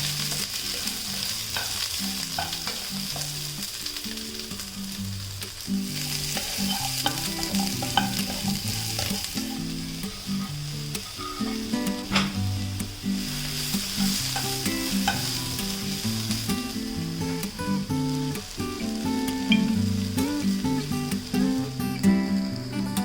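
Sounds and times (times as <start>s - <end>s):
food sizzling in a pan: 0.0s - 23.0s
utensil clicking against pan: 0.2s - 3.4s, 6.3s - 9.6s, 10.9s - 12.9s, 13.7s - 15.8s.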